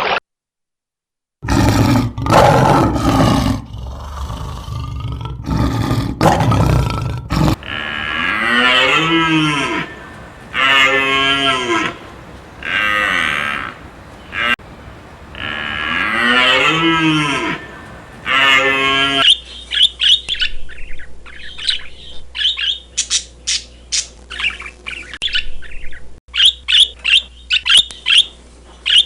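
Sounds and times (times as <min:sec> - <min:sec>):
cattle mooing: 0:07.4 - 0:19.2
loud rough rumbling noise: 0:07.4 - 0:19.2.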